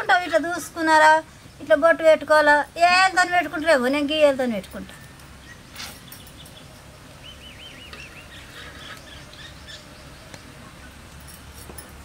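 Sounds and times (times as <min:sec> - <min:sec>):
steady low background noise: 0:00.0 - 0:12.0
bird warbling call: 0:05.4 - 0:11.0.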